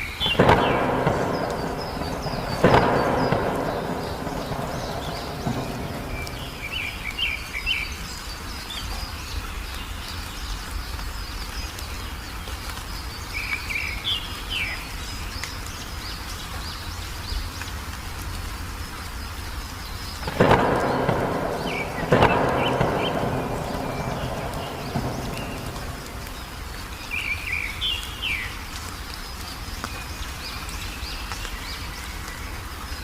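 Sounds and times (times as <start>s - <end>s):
wild birds chirping: 0.0s - 17.8s, 18.5s - 33.0s
steady low rumble: 0.4s - 7.5s, 20.3s - 27.2s.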